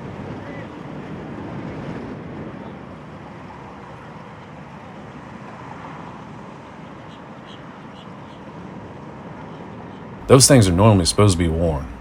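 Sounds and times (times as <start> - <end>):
watercraft engine drone: 10.2 - 12.0.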